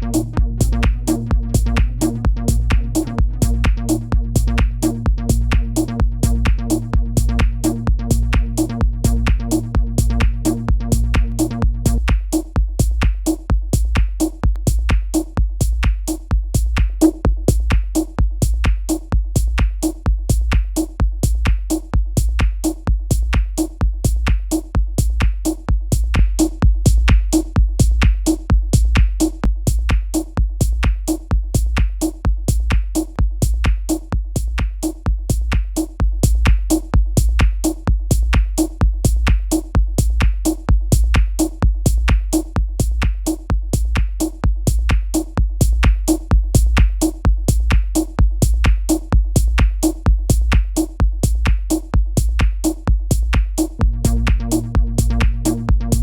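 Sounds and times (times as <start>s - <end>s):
deep bass: 0.0s - 15.0s, 25.0s - 30.0s, 33.4s - 56.0s
crisp hi-hat clicks: 0.0s - 56.0s.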